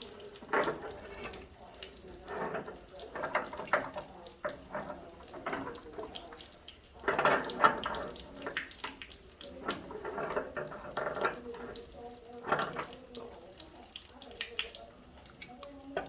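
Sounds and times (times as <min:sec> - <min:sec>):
water running and splashing: 0:00.0 - 0:16.0.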